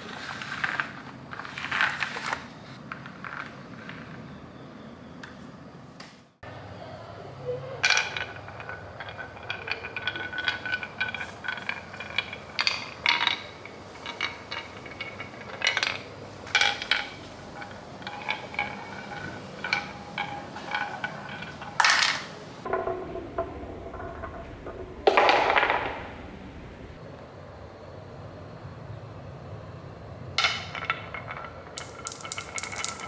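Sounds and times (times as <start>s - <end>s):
small hard objects clinking: 0.0s - 4.4s, 7.8s - 22.8s, 30.4s - 33.0s.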